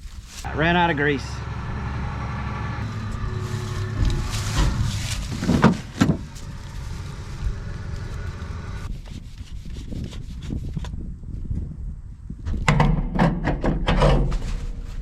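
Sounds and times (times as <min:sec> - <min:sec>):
engine running: 0:00.3 - 0:08.9.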